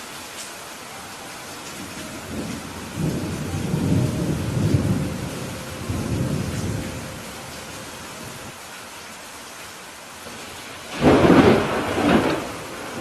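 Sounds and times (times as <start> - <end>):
rain hiss: 0.0 - 13.0
rolling thunder rumble: 1.8 - 8.5, 10.4 - 13.0.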